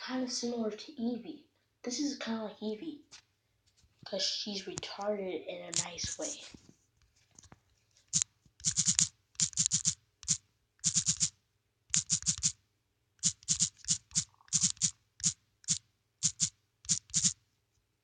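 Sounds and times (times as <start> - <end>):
typing on computer keyboard: 8.1 - 11.3, 11.9 - 12.6, 13.2 - 17.4.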